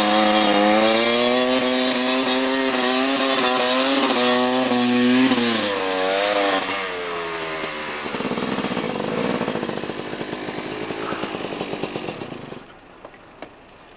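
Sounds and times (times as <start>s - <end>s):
motorcycle engine revving: 0.0s - 12.7s.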